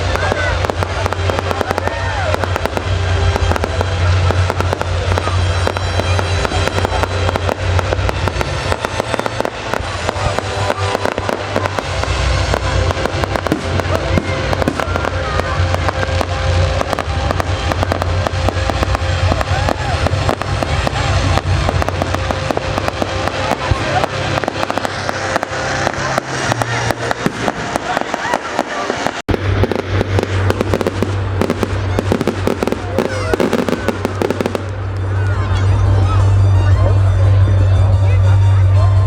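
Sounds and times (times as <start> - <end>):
fireworks bangs and crackles: 0.0 - 39.0
music with heavy bass: 30.8 - 39.0.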